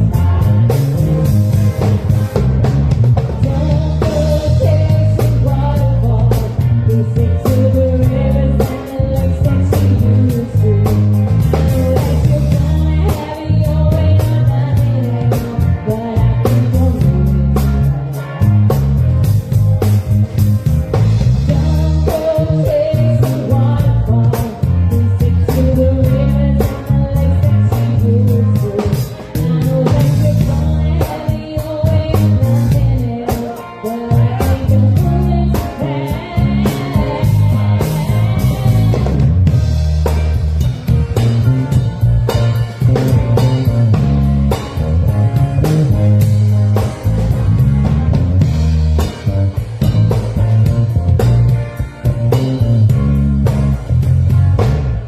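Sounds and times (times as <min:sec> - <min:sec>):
person singing: 0:00.0 - 0:01.3, 0:03.3 - 0:18.4, 0:21.4 - 0:39.4
bass guitar: 0:00.0 - 0:55.0
drum kit: 0:00.0 - 0:55.0
electric guitar: 0:00.0 - 0:55.0.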